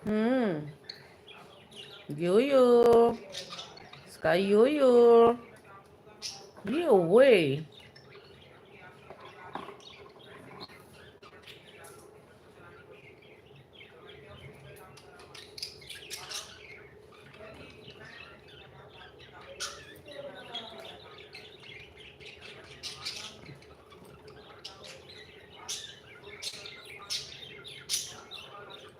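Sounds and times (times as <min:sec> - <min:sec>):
parrot chirping and chattering: 0:00.6 - 0:05.6, 0:06.2 - 0:28.9.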